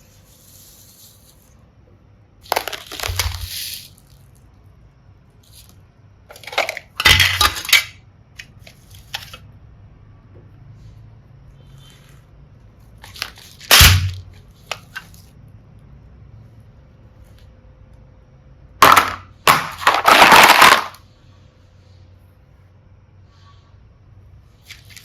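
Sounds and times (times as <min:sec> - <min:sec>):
plastic pieces clattering: 0:02.4 - 0:04.4, 0:05.4 - 0:09.4, 0:13.0 - 0:15.2, 0:18.8 - 0:21.0.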